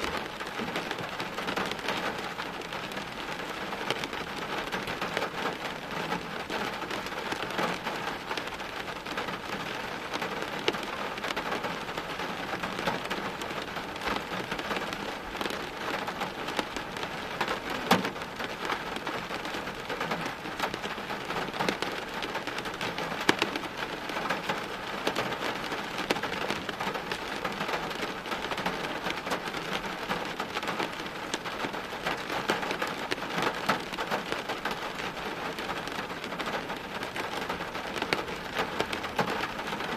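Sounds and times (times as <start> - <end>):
heavy rain on hard surfaces: 0.0 - 39.9.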